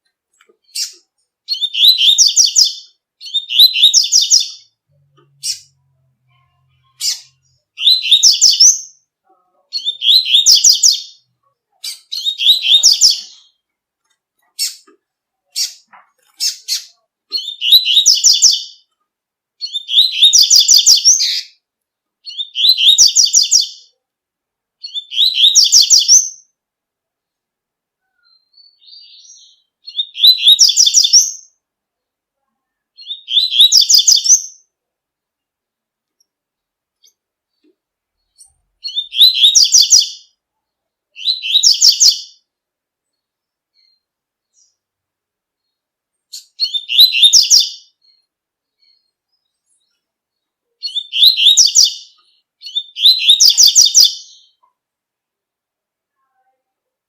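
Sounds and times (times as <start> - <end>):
bird singing warbled phrases: 0.4 - 19.0, 19.6 - 24.0, 24.8 - 26.6, 28.0 - 31.6, 32.6 - 34.8, 37.0 - 42.5, 45.6 - 54.7.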